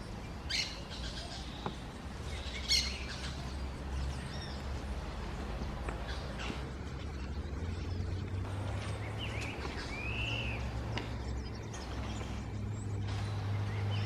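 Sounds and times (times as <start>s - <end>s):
steady low hum: 0.0s - 14.0s
bird whistling calls: 9.0s - 14.0s.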